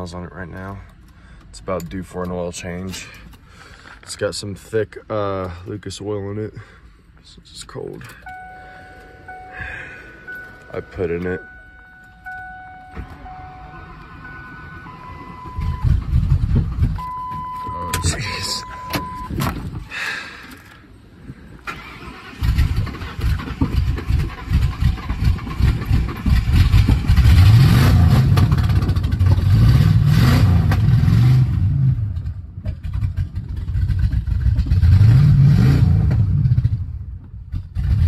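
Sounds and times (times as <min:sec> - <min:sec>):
car engine cranking and revving: 0:08.0 - 0:19.9, 0:21.6 - 0:38.0.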